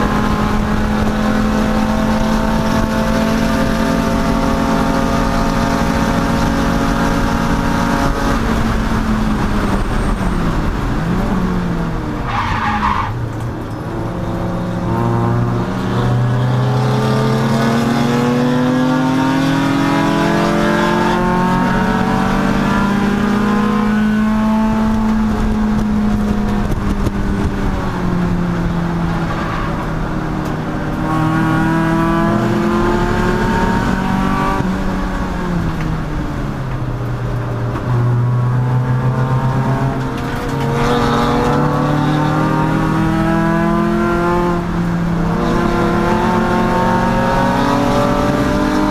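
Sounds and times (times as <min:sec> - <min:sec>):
race car engine revving: 0:00.0 - 0:48.9
tire squeal: 0:12.2 - 0:13.4.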